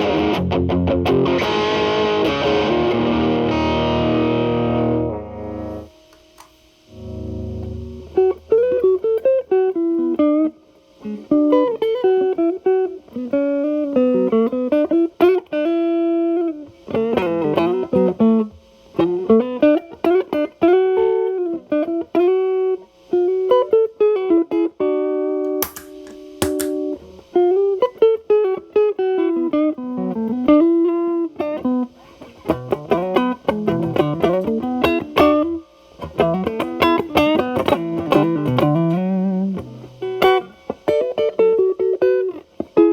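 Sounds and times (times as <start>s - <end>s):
distorted electric guitar lead: 0.0s - 6.0s, 6.9s - 14.8s, 29.4s - 42.9s.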